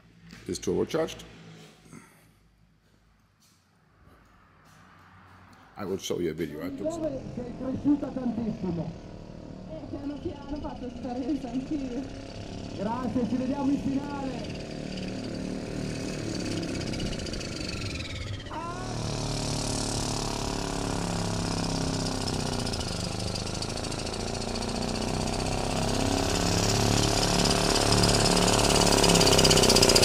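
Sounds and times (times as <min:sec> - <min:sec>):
high whine: 0:06.7 - 0:30.0
tractor engine running under load: 0:06.7 - 0:30.0.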